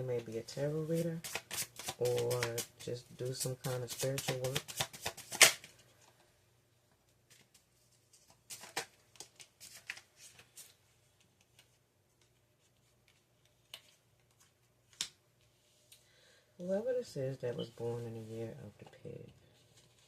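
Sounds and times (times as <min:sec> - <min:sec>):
cards flicking and snapping: 0:01.2 - 0:02.8, 0:03.4 - 0:05.7.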